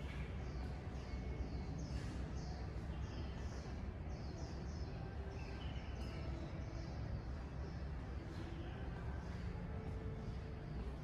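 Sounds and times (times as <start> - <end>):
small bird chirping: 0.0 - 8.8.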